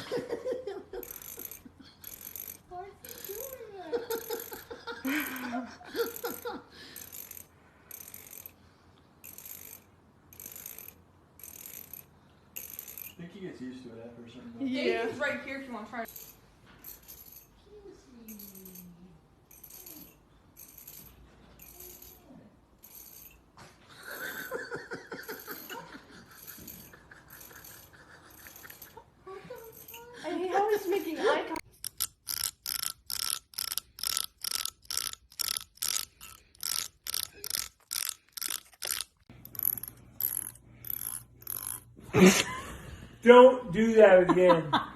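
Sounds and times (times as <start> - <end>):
comb teeth rasping: 1.0 - 3.6, 26.2 - 29.0, 31.6 - 41.9.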